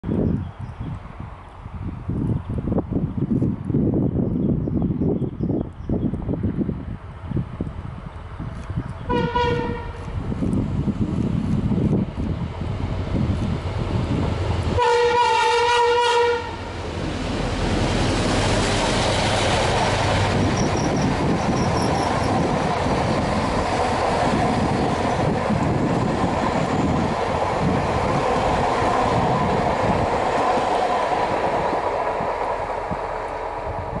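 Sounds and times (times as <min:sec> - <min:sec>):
locomotive engine and wheels rumbling: 0:00.0 - 0:34.0
train horn: 0:09.1 - 0:10.1, 0:14.8 - 0:16.7.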